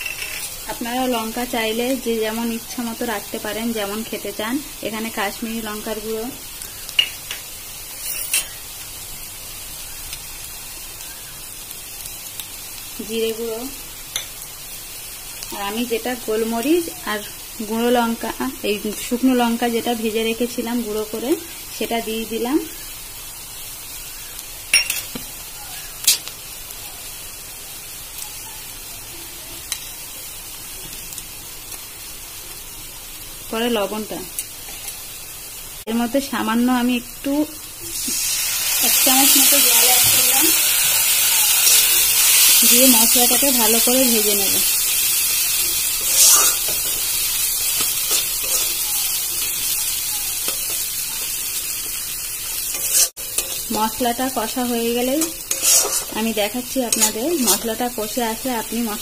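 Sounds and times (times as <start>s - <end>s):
onions sizzling in hot oil: 0.0s - 59.0s
spatula scraping and stirring: 46.0s - 53.8s, 55.2s - 57.8s.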